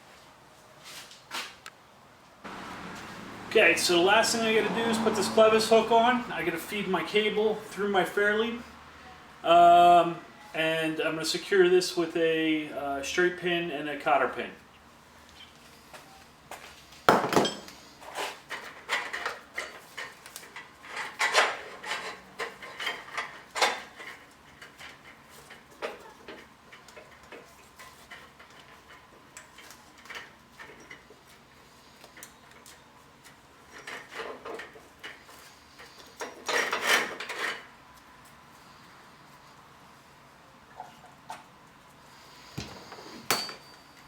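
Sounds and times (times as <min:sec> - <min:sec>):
metal clinks and clanks: 0:43.3 - 0:44.0.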